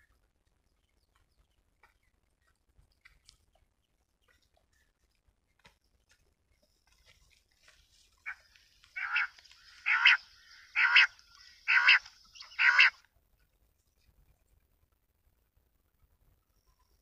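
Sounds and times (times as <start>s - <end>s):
bird calling: 8.1s - 13.0s.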